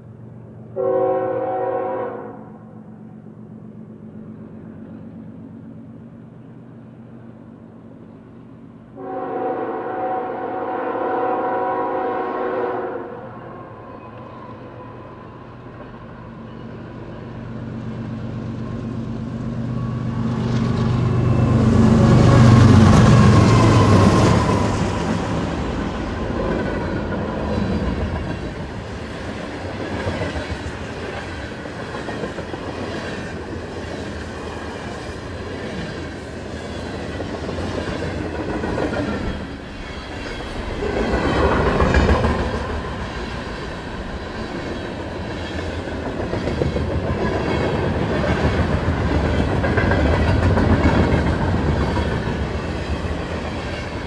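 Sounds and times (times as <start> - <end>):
locomotive horn blast: 0.7 - 2.6, 9.0 - 13.9.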